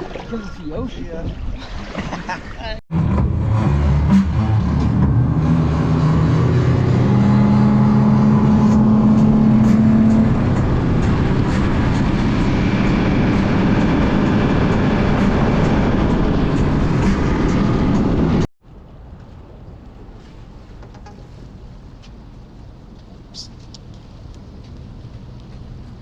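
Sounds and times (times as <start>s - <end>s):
wind and water rushing: 0.0s - 2.7s
boat engine running: 2.9s - 18.5s.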